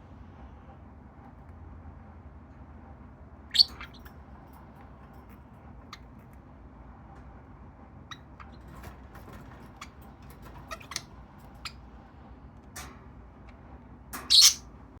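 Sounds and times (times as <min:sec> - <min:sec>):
budgerigars clicking and tapping: 0:03.6 - 0:04.0, 0:09.6 - 0:11.8, 0:14.2 - 0:14.6.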